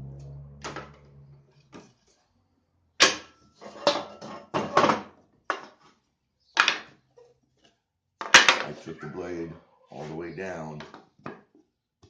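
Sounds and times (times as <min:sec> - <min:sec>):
wooden plate knocking and clattering: 0:03.0 - 0:05.9, 0:08.2 - 0:08.7.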